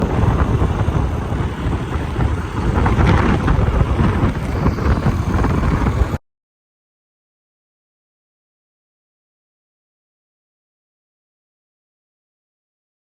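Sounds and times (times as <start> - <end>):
jet aircraft engine roar: 0.0 - 6.2.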